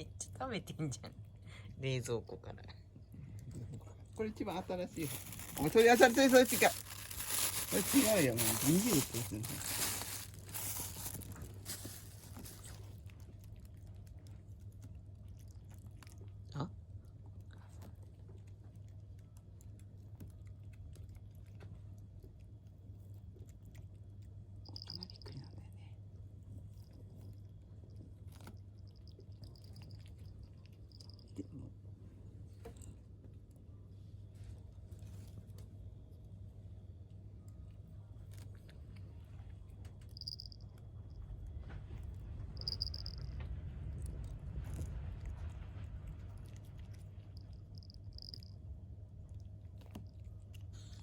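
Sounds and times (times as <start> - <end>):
cat chewing leaves crunches: 3.3 - 25.4, 26.6 - 31.7, 37.4 - 51.0.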